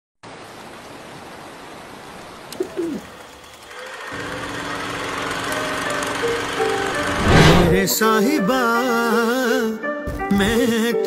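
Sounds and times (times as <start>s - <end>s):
music with steady drone: 5.4s - 7.2s.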